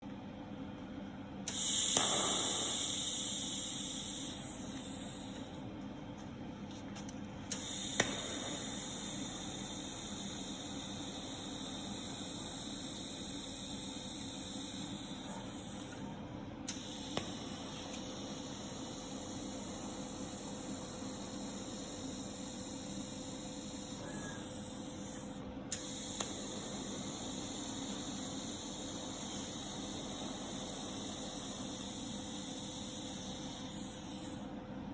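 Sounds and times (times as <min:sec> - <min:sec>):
welding arc hissing: 0:01.5 - 0:05.5, 0:07.5 - 0:16.0, 0:24.6 - 0:34.5.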